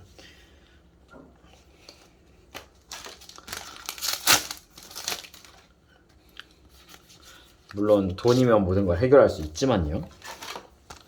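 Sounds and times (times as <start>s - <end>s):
foil wrapper crinkling and tearing: 2.8s - 5.7s.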